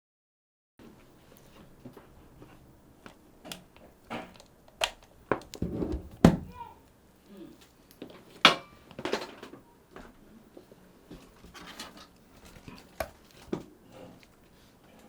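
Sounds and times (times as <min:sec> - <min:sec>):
small hard objects clicking: 0:03.0 - 0:05.6.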